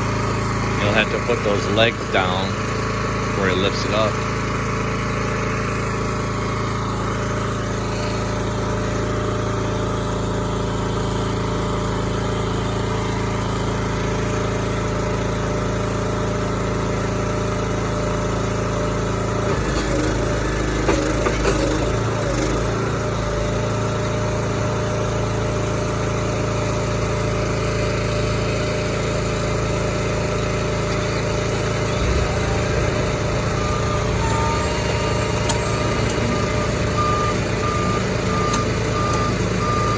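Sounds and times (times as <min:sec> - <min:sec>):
truck engine running: 0:00.0 - 0:39.9
reversing beeps: 0:31.9 - 0:39.9.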